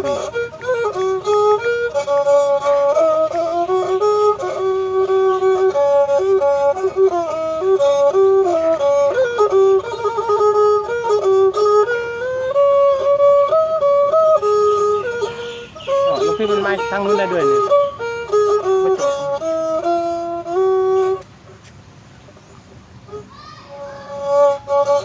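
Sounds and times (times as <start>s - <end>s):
reed oboe playing a melody: 0.0s - 21.8s, 23.0s - 25.0s.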